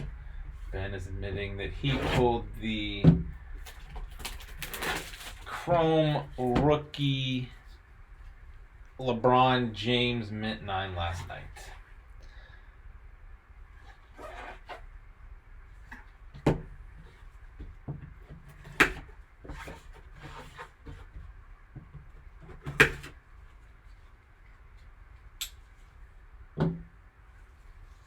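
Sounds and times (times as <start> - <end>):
packaging rustling: 3.6 - 5.7.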